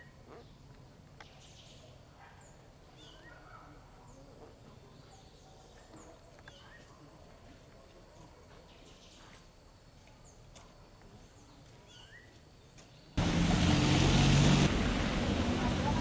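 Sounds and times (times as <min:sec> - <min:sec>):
faint bird chirps: 0:11.1 - 0:13.2.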